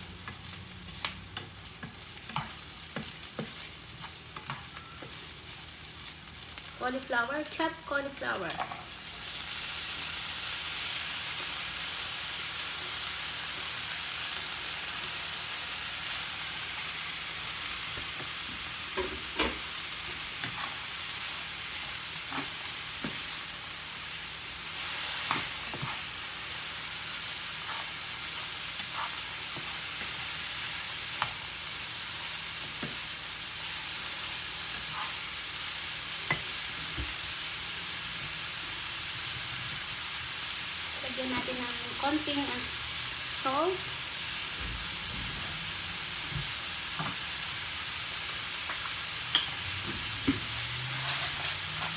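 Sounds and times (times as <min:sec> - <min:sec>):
cauliflower sizzling in frying pan: 0:00.0 - 0:51.9
spatula knocking and scraping pan: 0:01.4 - 0:05.2, 0:17.8 - 0:20.9, 0:22.2 - 0:23.4, 0:25.0 - 0:26.2, 0:27.6 - 0:30.4, 0:36.2 - 0:37.3, 0:48.6 - 0:51.9.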